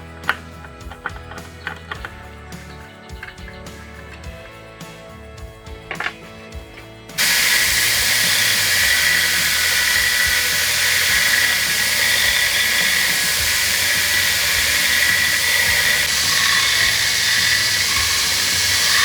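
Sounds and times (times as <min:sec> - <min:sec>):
power tool grinding steel: 0:07.2 - 0:19.0.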